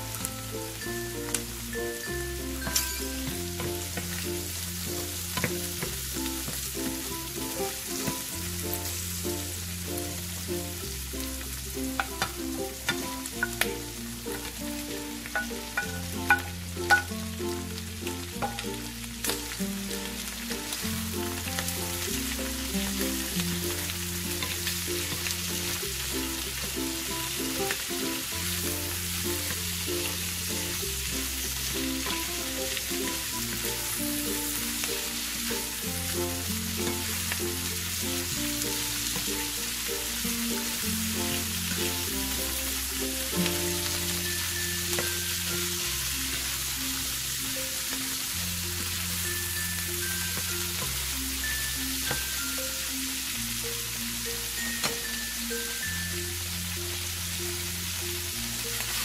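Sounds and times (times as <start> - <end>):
food sizzling in hot oil: 0.0 - 59.0
light background music: 0.0 - 59.0.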